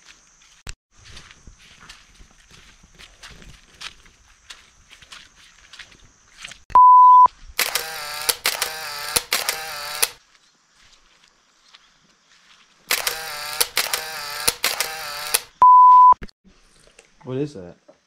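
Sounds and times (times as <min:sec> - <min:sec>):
loud electronic beeps: 0:06.8 - 0:07.3, 0:15.6 - 0:16.2.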